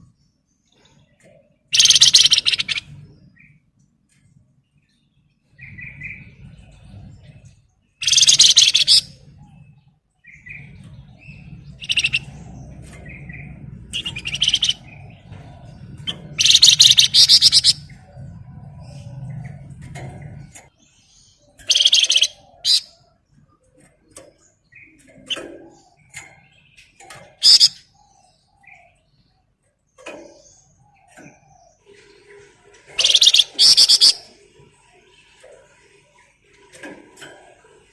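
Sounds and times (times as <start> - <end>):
bird chirps: 0.0 - 3.6, 4.7 - 36.2
songbird trilling: 1.7 - 3.0, 8.0 - 9.3, 10.3 - 18.0, 21.5 - 23.0, 27.4 - 28.1, 33.0 - 34.4.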